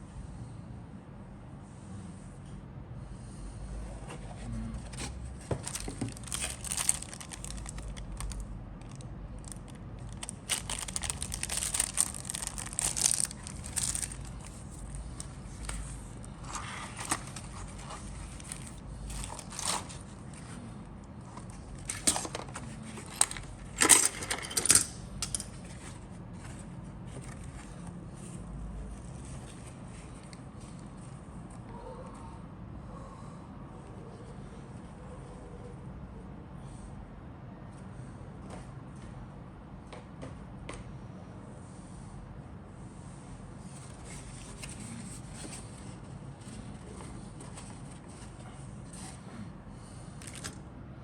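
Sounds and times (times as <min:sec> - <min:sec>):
plastic packaging rustling and crinkling: 0:04.9 - 0:20.5, 0:21.5 - 0:24.2
plastic parts clicking: 0:23.1 - 0:25.5.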